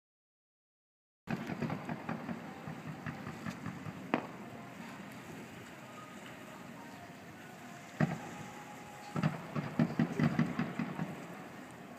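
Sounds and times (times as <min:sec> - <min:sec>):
firework bang: 0:01.3 - 0:04.4, 0:09.2 - 0:11.3
fireworks crackling: 0:01.3 - 0:11.9.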